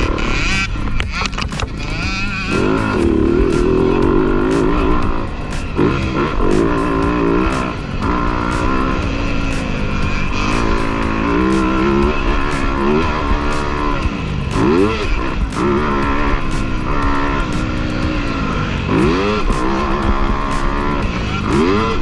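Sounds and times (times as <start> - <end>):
dirt bike engines revving: 0.0 - 22.0
music playing: 0.0 - 22.0.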